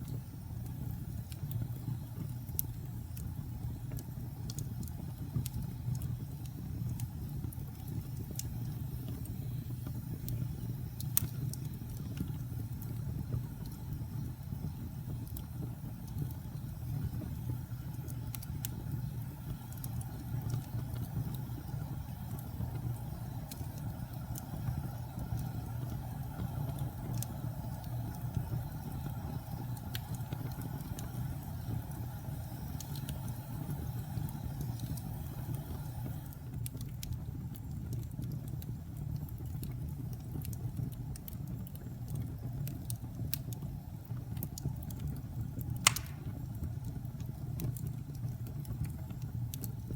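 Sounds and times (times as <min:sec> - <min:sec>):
fire crackles and pops: 0:00.0 - 0:49.9
fire rumbling in fireplace: 0:00.0 - 0:49.9
sharp wood snap: 0:45.8 - 0:46.3.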